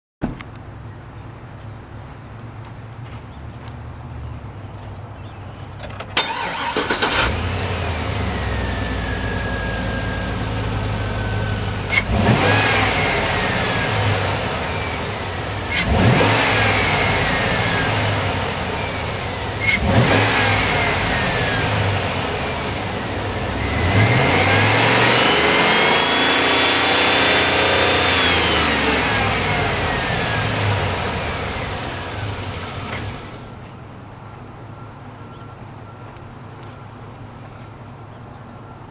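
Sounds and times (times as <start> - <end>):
pickup engine cranking and idling: 6.0 - 33.6
engine revving: 6.2 - 33.5.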